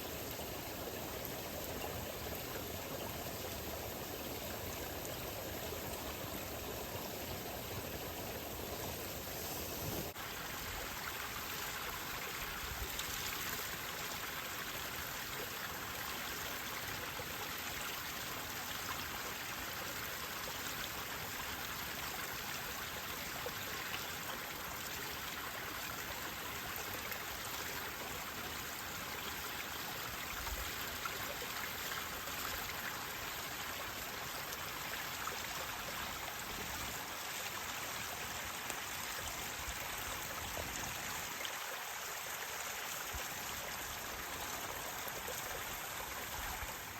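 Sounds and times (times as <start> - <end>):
faint fire crackles: 7.8 - 10.2
campfire hissing: 8.6 - 10.2.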